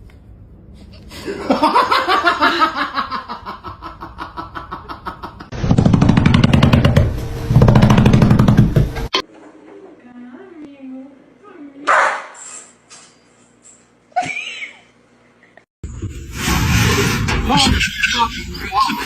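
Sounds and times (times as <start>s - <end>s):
rapid pulsing laughter-like voice: 16.9s - 19.0s.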